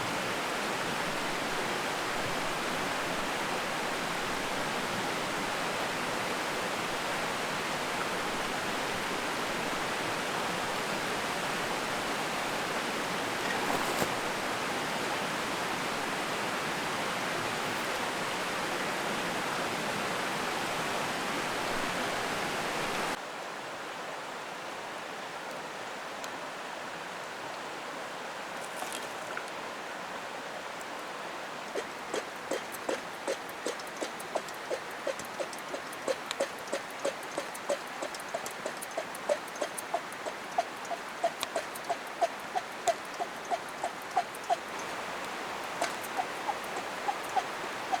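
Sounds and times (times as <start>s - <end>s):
stream rushing over rocks: 27.0s - 48.0s.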